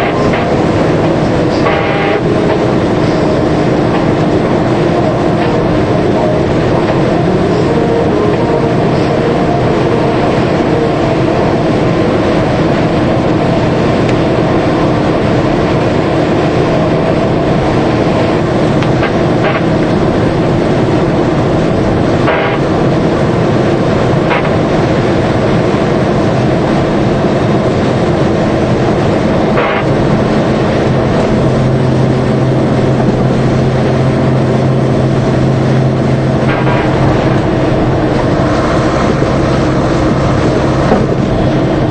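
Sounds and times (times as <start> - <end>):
low engine tone: 0.0 - 41.9
truck engine and road noise: 0.0 - 41.9.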